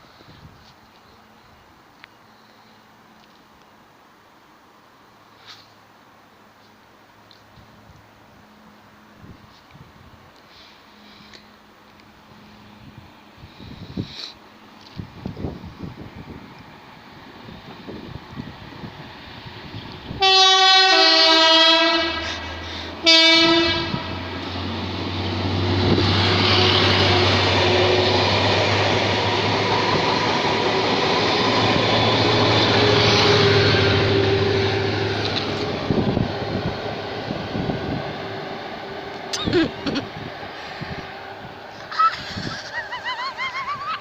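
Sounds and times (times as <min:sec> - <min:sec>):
locomotive engine drone: 0:06.0 - 0:44.0
wheels rumbling on rails: 0:06.5 - 0:44.0
two-tone train horn: 0:20.2 - 0:24.4, 0:26.0 - 0:28.1.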